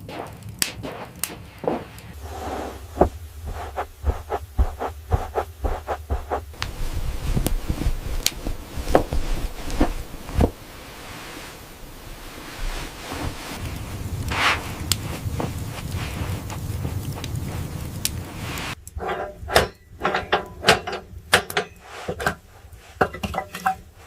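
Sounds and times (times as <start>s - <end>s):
dull thumps: 0.0s - 17.5s
steady hiss: 0.0s - 24.0s.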